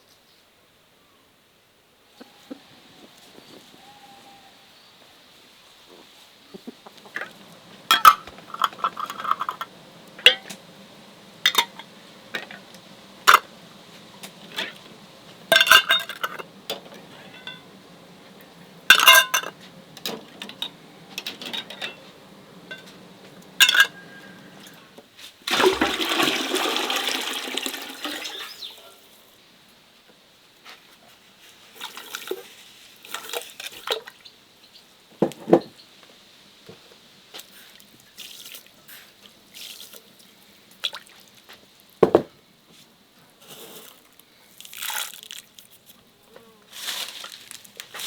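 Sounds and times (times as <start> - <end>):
water rushing: 6.9 - 28.7
objects knocking and clinking: 7.1 - 24.9.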